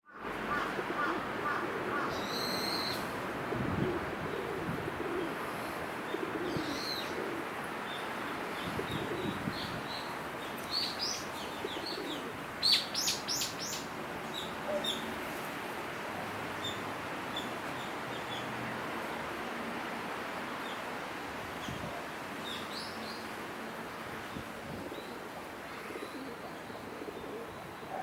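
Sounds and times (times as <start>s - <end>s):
steady background noise: 0.1s - 28.0s
birds calling: 6.0s - 15.2s.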